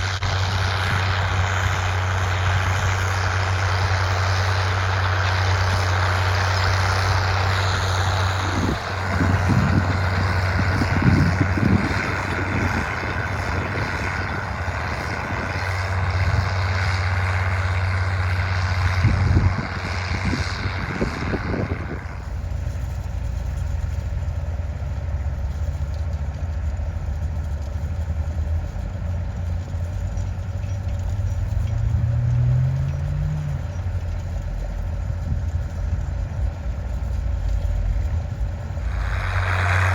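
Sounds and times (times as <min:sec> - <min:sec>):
loud hissing rush: 0:00.0 - 0:17.5, 0:37.8 - 0:39.9
diesel engine running: 0:00.0 - 0:39.9.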